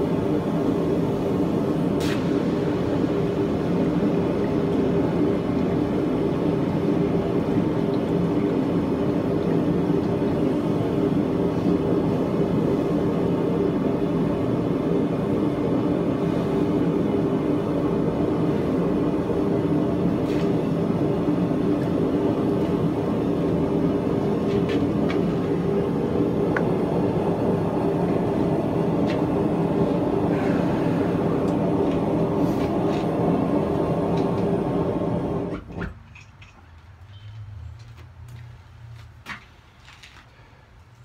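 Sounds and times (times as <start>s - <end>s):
mechanical roar with low hum: 0.0s - 41.0s.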